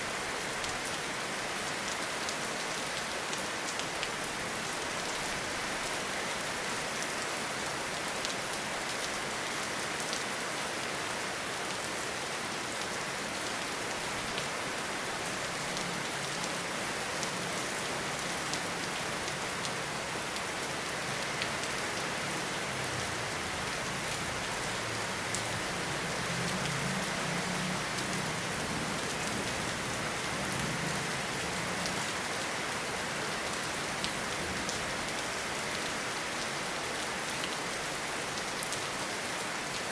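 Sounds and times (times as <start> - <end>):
rain falling in a forest: 0.0 - 39.9.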